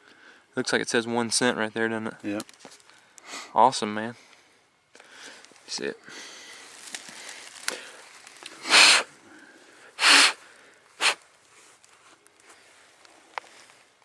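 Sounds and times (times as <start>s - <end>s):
hissing puffs of breath: 5.0s - 11.2s.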